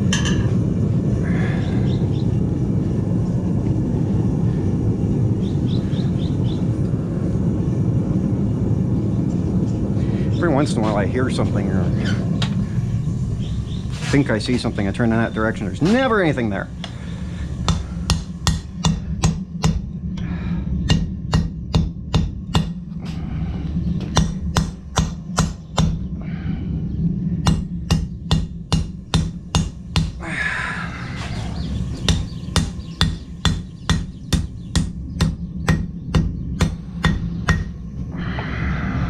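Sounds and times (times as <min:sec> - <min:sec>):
steady low hum: 0:00.0 - 0:39.0
hammer striking metal on anvil: 0:17.7 - 0:19.9, 0:20.9 - 0:22.8, 0:24.1 - 0:26.0, 0:27.4 - 0:30.2, 0:32.0 - 0:37.8.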